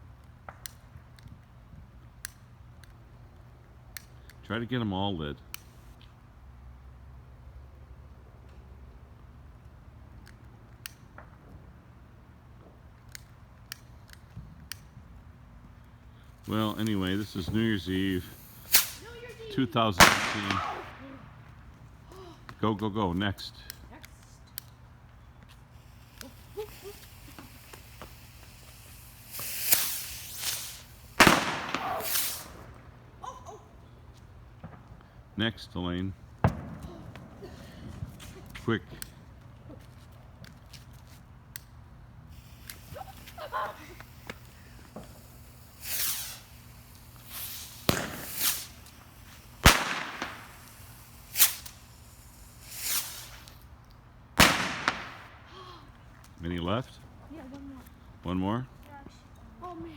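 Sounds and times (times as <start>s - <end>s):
firework hissing and crackling: 13.2s - 22.5s, 25.4s - 35.4s, 36.2s - 56.2s
loud firework bang: 20.0s - 21.5s, 29.0s - 32.8s, 36.4s - 38.2s, 47.2s - 51.8s, 54.4s - 55.5s.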